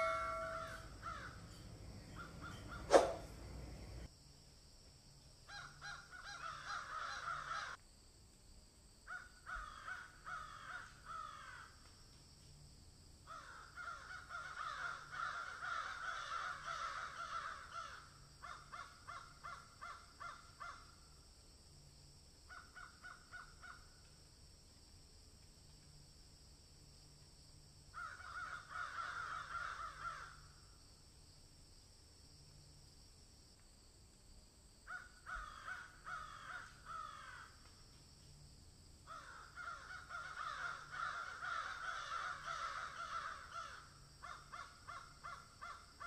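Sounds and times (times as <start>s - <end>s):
bird calling with harsh notes: 0.0s - 4.1s.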